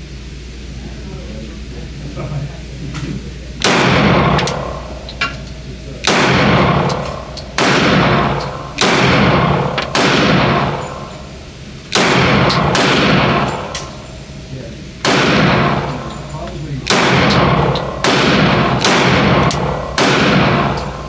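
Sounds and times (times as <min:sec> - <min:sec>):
handgun shots echoing: 0:03.6 - 0:11.3, 0:11.9 - 0:14.0, 0:15.0 - 0:21.0.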